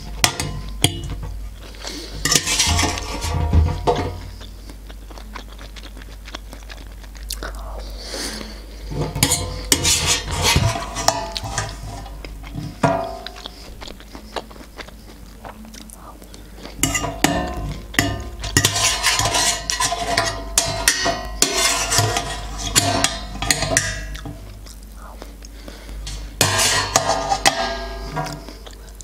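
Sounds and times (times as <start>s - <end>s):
metal fork scraping metal tray: 2.2s - 4.2s, 8.9s - 13.5s, 16.8s - 24.4s, 26.0s - 28.4s.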